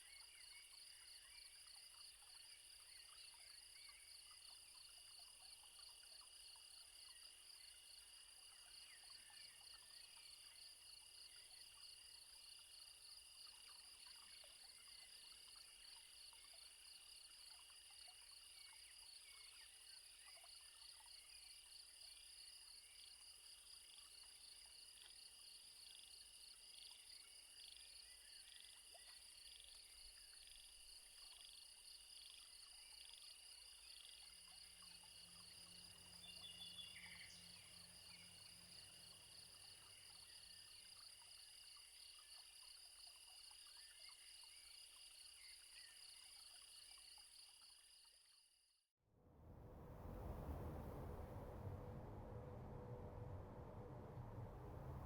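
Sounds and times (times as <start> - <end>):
low hum: 49.1 - 55.0.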